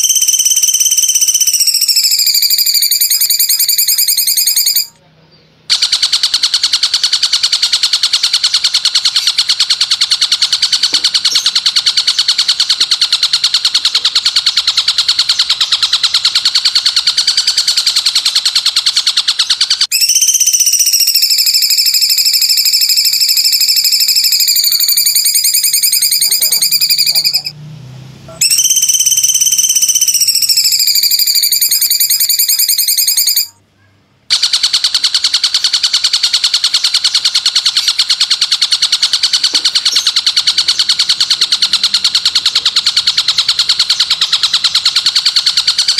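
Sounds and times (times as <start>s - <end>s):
fast buzzing bird trill: 0.0s - 5.0s, 5.7s - 27.6s, 28.4s - 33.6s, 34.3s - 45.9s
long high bird call: 0.0s - 5.5s, 10.4s - 27.6s, 28.4s - 34.0s.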